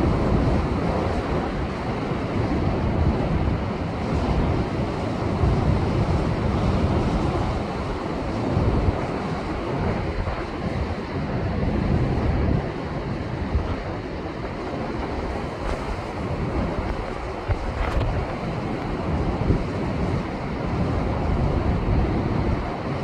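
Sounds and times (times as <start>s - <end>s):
wind buffeting microphone: 0.0s - 23.0s
heavy surf breaking on rocks: 12.9s - 23.0s.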